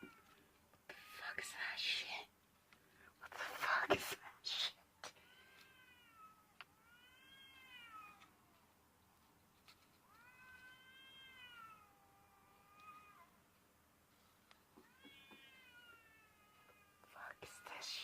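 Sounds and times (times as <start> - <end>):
cat meowing: 5.2 - 8.4, 10.0 - 13.4, 14.8 - 18.0.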